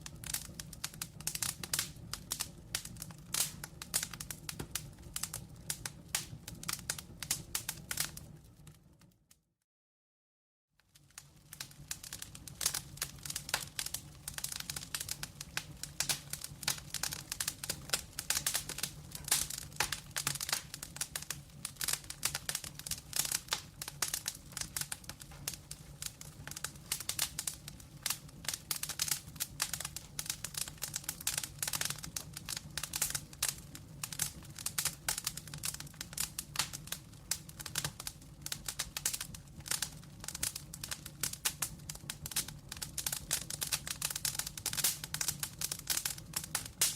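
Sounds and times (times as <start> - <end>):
wood fire crackling and popping: 0.0 - 9.3, 10.8 - 46.9.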